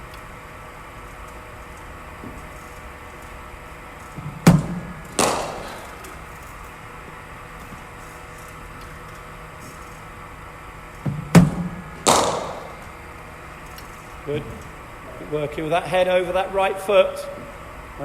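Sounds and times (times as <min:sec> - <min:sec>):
faint steady hum: 0:00.0 - 0:18.0
bowling machine firing thud: 0:04.2 - 0:06.3, 0:11.0 - 0:13.1
bat striking ball: 0:04.2 - 0:06.6, 0:11.1 - 0:13.2.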